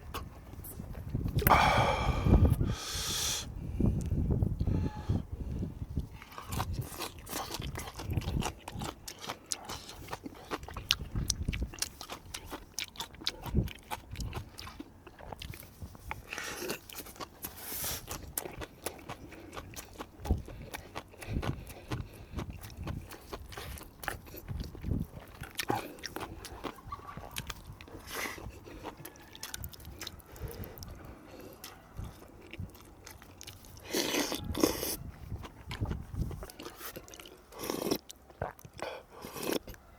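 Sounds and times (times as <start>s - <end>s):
person chewing and crunching food: 0.0s - 39.9s
wet mouth clicks: 1.3s - 1.7s
smacking or slurping: 6.0s - 39.8s.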